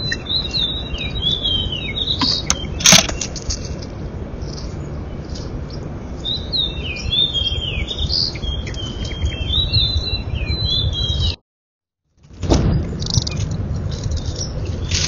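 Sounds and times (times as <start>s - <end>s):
small birds chirping: 0.0s - 11.4s, 12.8s - 15.0s
steady low rumble: 12.2s - 15.0s.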